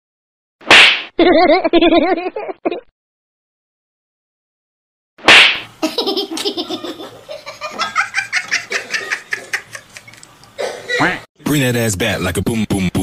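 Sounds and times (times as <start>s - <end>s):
hearty laughter: 5.8s - 11.2s.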